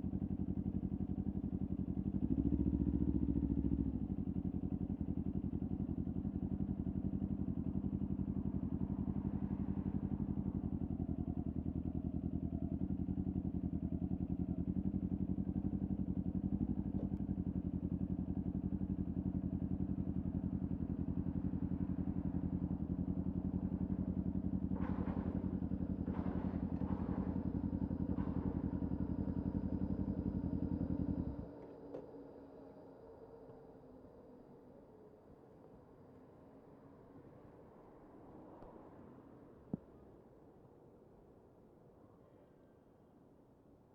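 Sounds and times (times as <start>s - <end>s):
motorcycle engine idling: 0.0s - 31.6s.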